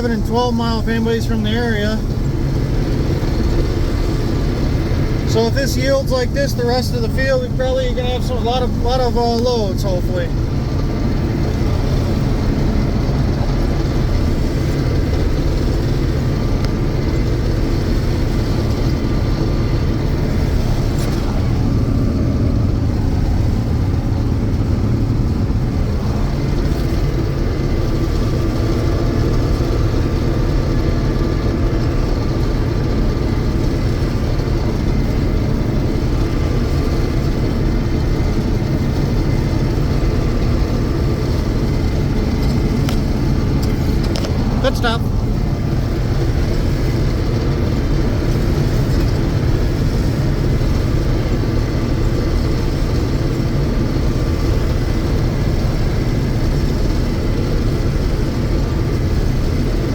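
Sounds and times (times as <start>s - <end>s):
combine harvester droning: 0.0s - 59.9s
faint steady whine: 0.0s - 59.9s.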